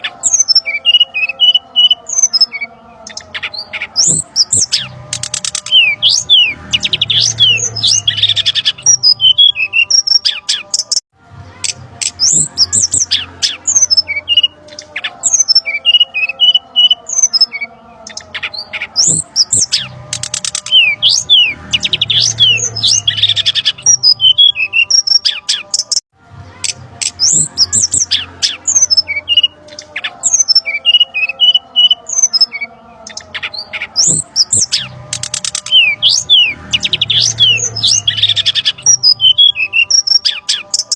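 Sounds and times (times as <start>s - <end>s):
bird chirps and whistles: 27.1s - 40.9s.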